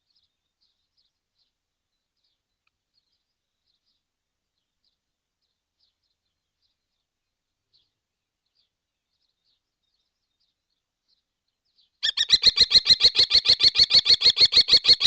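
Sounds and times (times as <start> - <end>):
kestrel kee-kee calls: 12.0 - 15.0.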